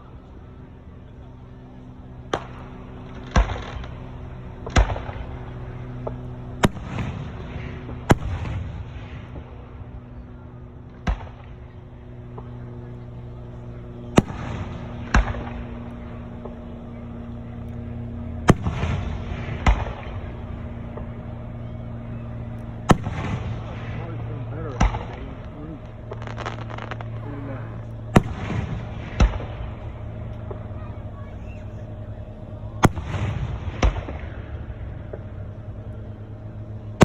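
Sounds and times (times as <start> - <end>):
steady low hum: 0.0 - 37.0
firework crackling: 21.9 - 35.4
firework shells bursting: 24.8 - 30.7.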